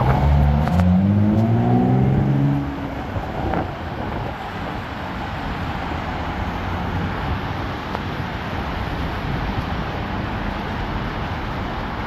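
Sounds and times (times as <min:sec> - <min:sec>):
heavy rain on a street: 0:02.6 - 0:12.0.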